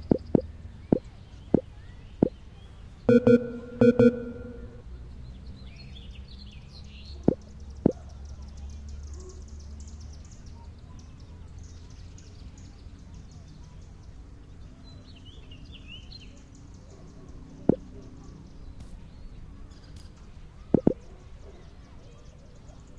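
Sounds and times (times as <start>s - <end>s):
low background hum: 0.0s - 5.3s.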